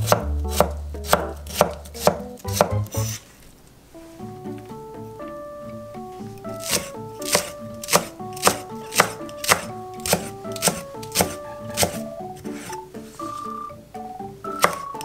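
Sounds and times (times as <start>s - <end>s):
knife chopping on wooden board: 0.0s - 3.2s, 6.5s - 12.0s, 14.6s - 15.0s
light background music: 0.0s - 3.3s, 3.9s - 15.0s.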